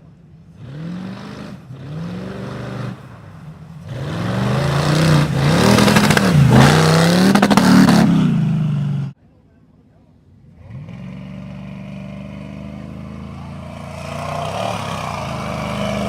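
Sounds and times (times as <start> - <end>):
truck engine revving hard: 0.5 - 9.2, 10.5 - 16.0.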